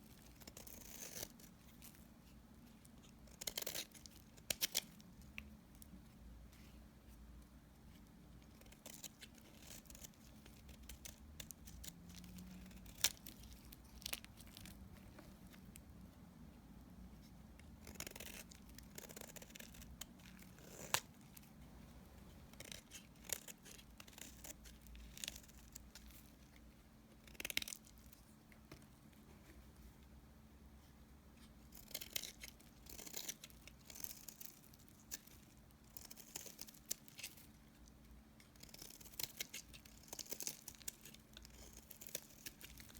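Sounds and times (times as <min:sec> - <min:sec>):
knife cutting dry soap: 0:00.0 - 0:02.0.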